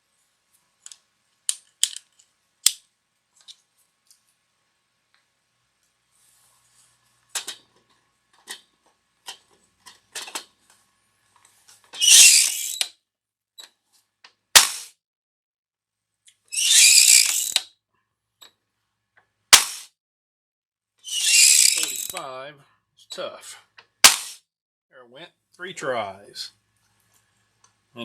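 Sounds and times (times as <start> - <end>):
rasping mechanism strokes: 12.0 - 12.8, 16.6 - 17.6, 21.1 - 22.2.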